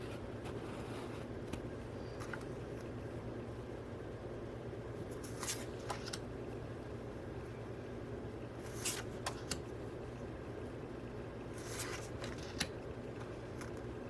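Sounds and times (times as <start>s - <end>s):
low room hum: 0.0s - 14.0s
paper rustling: 5.1s - 6.2s, 8.6s - 9.6s, 11.5s - 13.9s.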